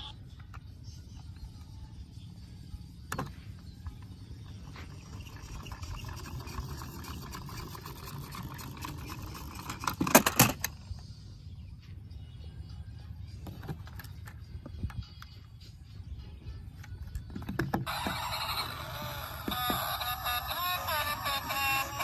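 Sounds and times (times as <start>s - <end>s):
plastic toys clattering: 5.0s - 10.8s.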